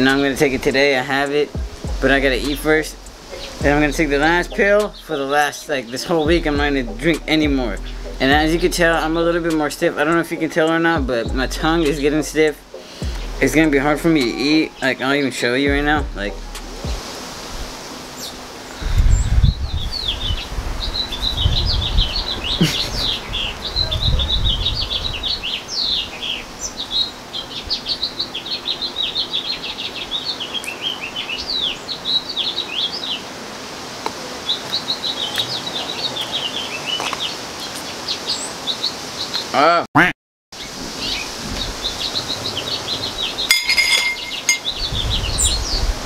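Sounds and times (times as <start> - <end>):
small birds chirping: 0.0 - 16.0, 17.8 - 33.4, 34.0 - 39.7, 40.6 - 46.0
low rumble: 1.6 - 4.8.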